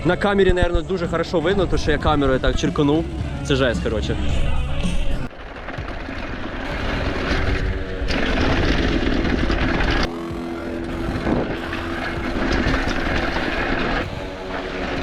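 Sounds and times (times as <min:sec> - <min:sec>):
tyres rolling over dirt: 0:04.4 - 0:15.0
wind on microphone: 0:10.9 - 0:14.2.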